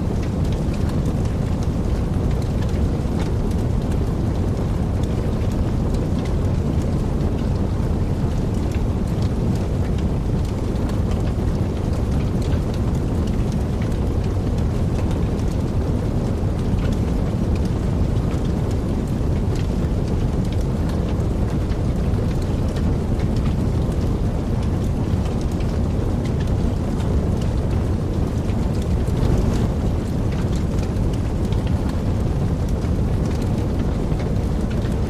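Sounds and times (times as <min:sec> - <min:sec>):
fire crackles: 0:00.0 - 0:35.0
fire flames rumbling: 0:00.0 - 0:35.0.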